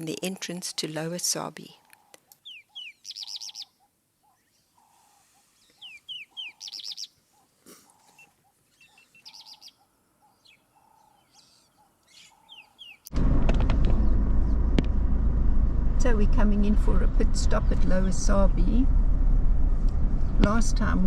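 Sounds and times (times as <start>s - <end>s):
bird whistles and trill: 2.4s - 3.7s, 5.8s - 7.1s.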